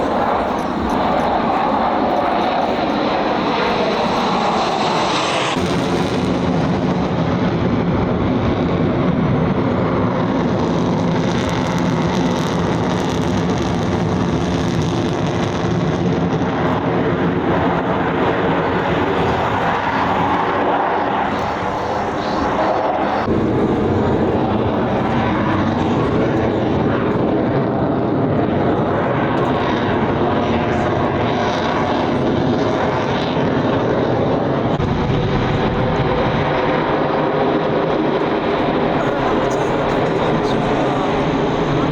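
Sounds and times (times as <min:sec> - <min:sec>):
aircraft engine roar: 0:00.0 - 0:41.9.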